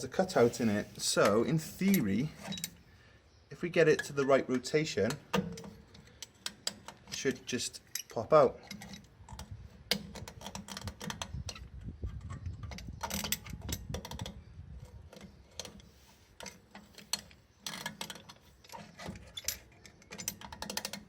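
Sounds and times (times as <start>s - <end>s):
metal scraping: 0.0s - 2.8s
small metallic clicks: 5.0s - 21.0s.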